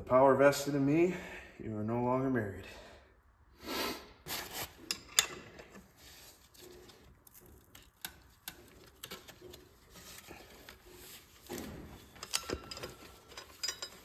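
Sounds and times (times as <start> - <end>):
hand tools clicking and tapping: 6.9 - 14.0.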